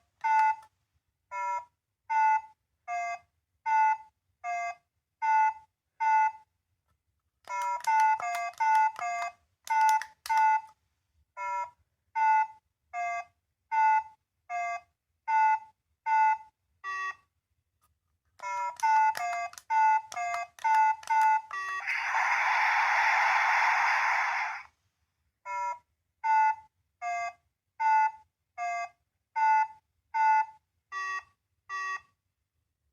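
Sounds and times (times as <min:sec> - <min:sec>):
electronic toy beeping: 0:18.4 - 0:24.7.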